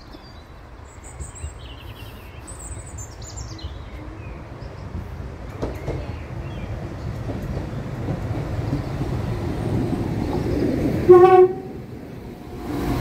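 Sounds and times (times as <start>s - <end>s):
train engine and wheel rumble: 0.0s - 13.0s
train horn blast: 11.0s - 11.9s.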